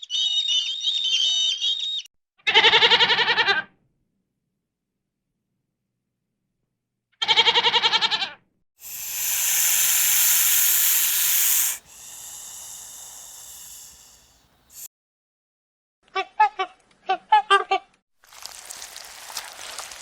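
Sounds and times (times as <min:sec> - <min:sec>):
quavering bleat: 0:02.5 - 0:03.6
loud steady hiss: 0:08.8 - 0:14.9.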